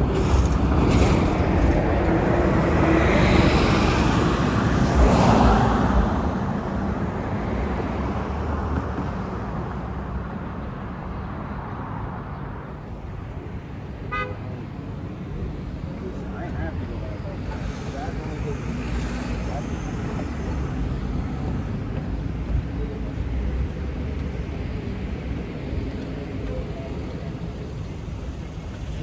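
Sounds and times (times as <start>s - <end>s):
vehicle passing by: 0.0s - 8.8s
car horn toot: 14.1s - 14.4s.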